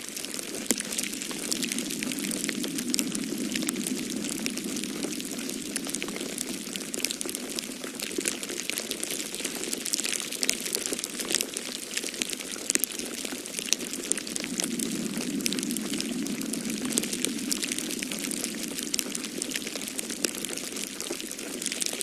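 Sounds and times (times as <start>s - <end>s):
low rushing noise: 0.0s - 8.4s, 13.4s - 22.0s
wood fire crackling and popping: 0.0s - 22.0s.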